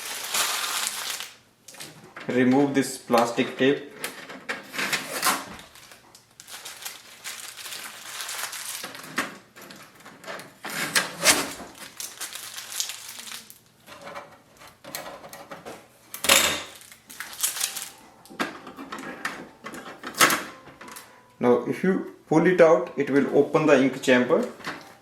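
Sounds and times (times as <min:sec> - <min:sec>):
tape peeled off plastic: 0:00.0 - 0:02.0, 0:10.7 - 0:13.8, 0:16.7 - 0:18.0
crinkling and handling noise: 0:00.0 - 0:21.4, 0:22.5 - 0:25.0.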